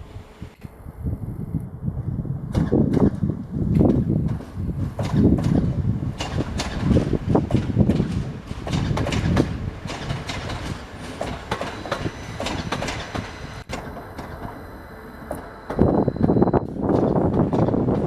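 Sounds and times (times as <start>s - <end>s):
train wheels clattering: 2.5s - 14.6s, 15.2s - 18.0s
faint high whine: 13.2s - 16.9s.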